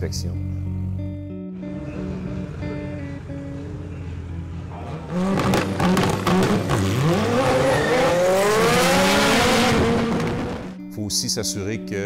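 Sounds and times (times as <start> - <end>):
car engine revving: 1.6 - 10.8.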